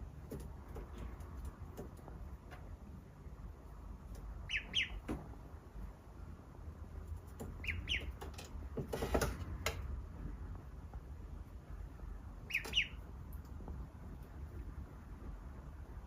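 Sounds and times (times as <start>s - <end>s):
duckling peeping: 4.1s - 5.2s, 7.2s - 8.3s, 12.3s - 13.5s.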